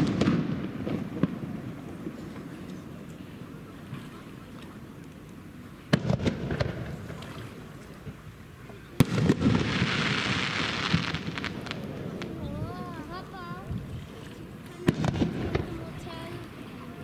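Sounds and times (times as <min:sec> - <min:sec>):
scattered firework pops: 0:00.0 - 0:01.5, 0:05.9 - 0:07.0, 0:09.0 - 0:12.4, 0:14.8 - 0:15.8
fireworks bangs: 0:00.0 - 0:02.2, 0:05.9 - 0:07.1, 0:09.0 - 0:13.0, 0:14.8 - 0:16.6.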